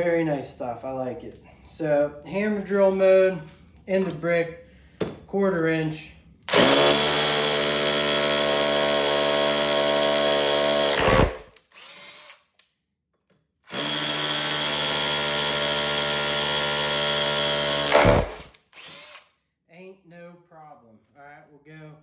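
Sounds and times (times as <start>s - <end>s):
hammer drill boring into brick: 6.5s - 12.5s, 13.7s - 19.3s.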